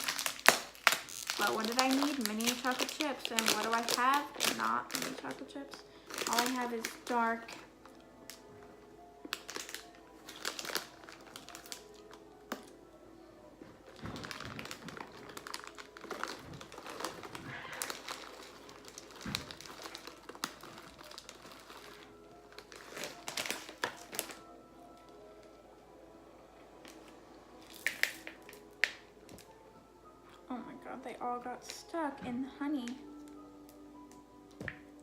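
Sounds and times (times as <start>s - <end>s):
plastic bag crinkling: 0.0s - 8.5s, 9.3s - 12.8s, 13.6s - 25.2s, 26.9s - 29.6s
quiet background music: 0.0s - 35.0s.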